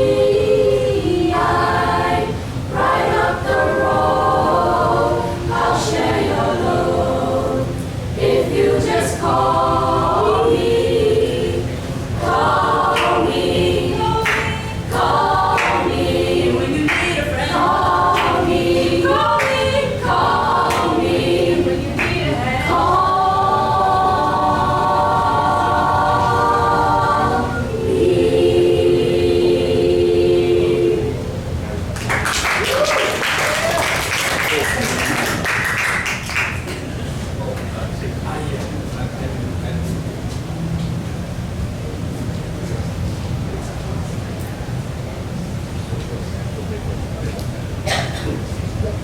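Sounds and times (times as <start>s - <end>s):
group singing a cappella: 0.0s - 31.8s.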